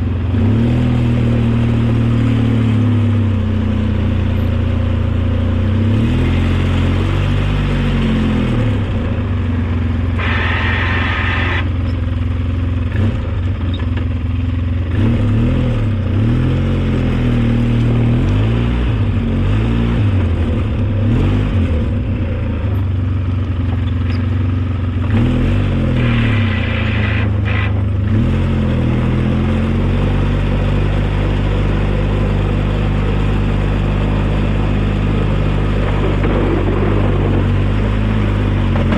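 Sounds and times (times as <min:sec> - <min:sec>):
snowplow engine revving: 0:00.0 - 0:38.9
harsh high-pitched noise: 0:10.2 - 0:11.8.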